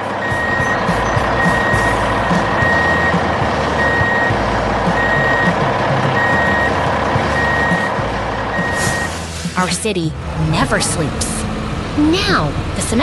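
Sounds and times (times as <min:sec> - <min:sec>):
truck backup alarm beeping: 0:00.0 - 0:09.3
heavy machinery engines rumbling: 0:00.0 - 0:13.0.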